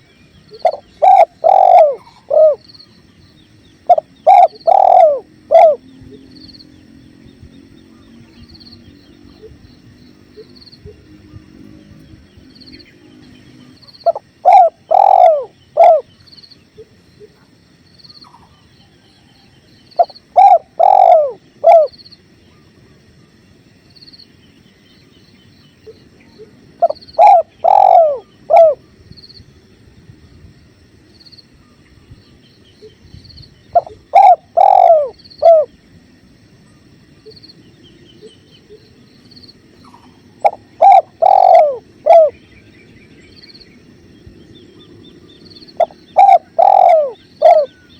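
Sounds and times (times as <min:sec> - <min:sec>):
dove cooing: 0:00.0 - 0:02.8, 0:03.8 - 0:06.2, 0:13.6 - 0:16.2, 0:20.0 - 0:22.0, 0:25.8 - 0:28.9, 0:33.7 - 0:35.7, 0:39.9 - 0:42.4, 0:45.8 - 0:47.9.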